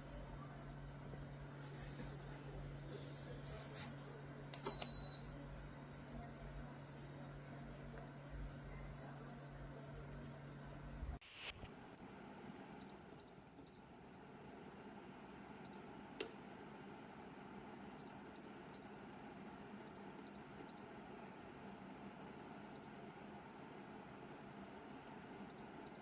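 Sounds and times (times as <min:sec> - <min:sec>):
heater fan noise: 0:00.0 - 0:26.0.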